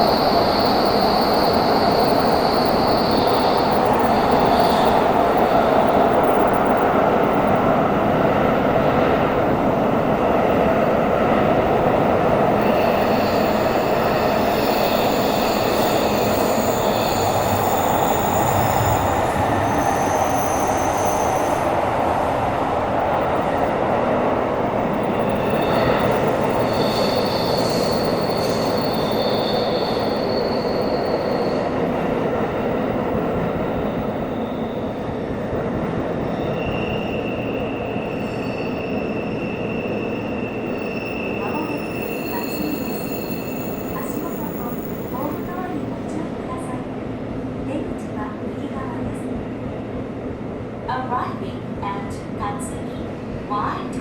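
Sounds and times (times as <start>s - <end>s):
subway train wheels rumbling on rail: 0.0s - 54.0s
high-pitched wheel squeal: 12.6s - 21.6s, 25.3s - 31.9s, 36.3s - 45.3s.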